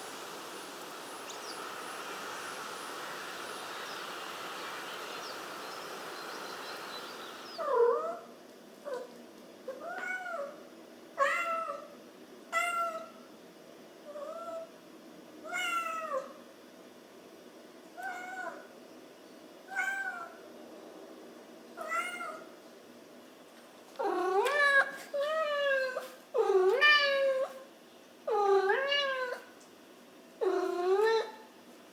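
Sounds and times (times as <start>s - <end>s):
outdoor ambience hiss: 0.0s - 31.9s
cat meowing: 28.3s - 29.5s.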